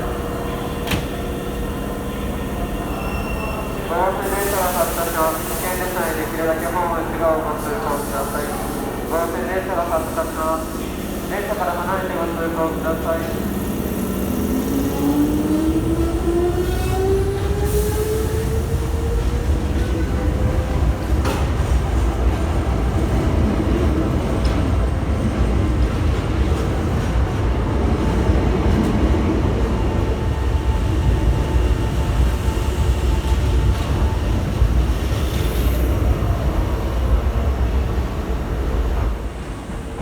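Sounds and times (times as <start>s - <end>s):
electric train rumbling on rails: 0.0s - 40.0s
train clicks: 21.1s - 22.0s.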